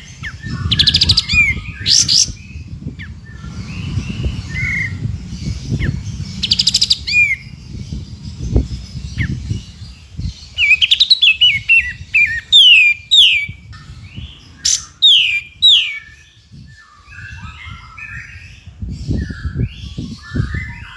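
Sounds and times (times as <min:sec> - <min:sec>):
low rumbling noise: 0:00.0 - 0:20.9
songbirds singing: 0:00.0 - 0:20.9
scratchy chattering bird notes: 0:00.3 - 0:16.2
falling whistled bird notes: 0:14.6 - 0:18.4.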